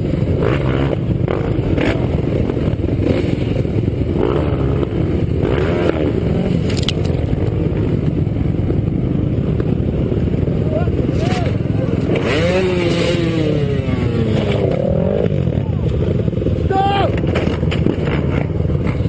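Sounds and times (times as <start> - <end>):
dirt bike engines revving: 0.0 - 19.0
knocks and scrapes: 17.1 - 19.0.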